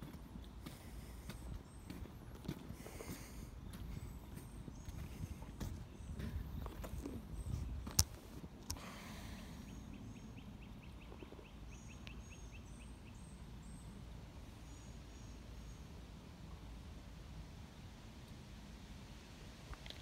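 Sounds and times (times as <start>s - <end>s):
faint bird chirps: 9.0s - 14.0s.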